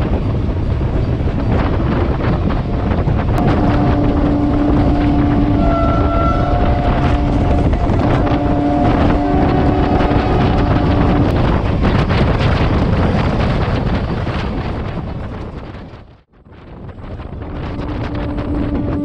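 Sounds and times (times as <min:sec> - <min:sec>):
train rumble: 0:00.0 - 0:19.0
wind noise on microphone: 0:00.0 - 0:19.0
two-note tone: 0:03.4 - 0:11.3.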